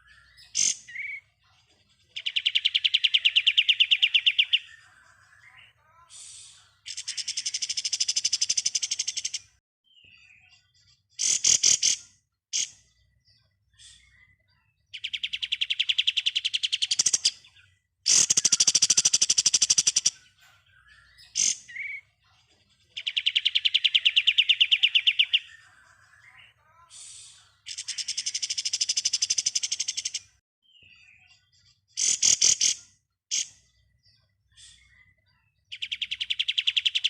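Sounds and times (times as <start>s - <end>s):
bird chirps: 0.0s - 37.0s
songbird rattling trill: 18.1s - 20.2s.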